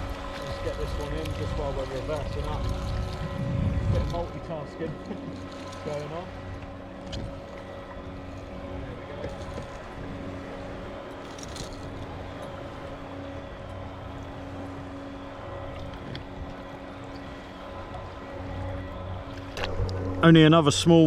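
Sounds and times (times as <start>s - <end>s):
electric boat motor humming: 0.0s - 21.0s
water noise: 0.0s - 21.0s.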